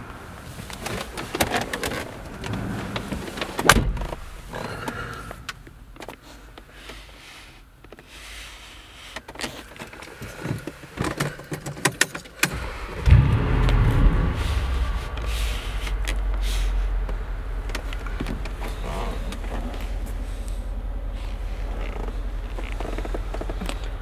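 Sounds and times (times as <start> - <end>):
car engine starting and idling: 14.4 - 24.0.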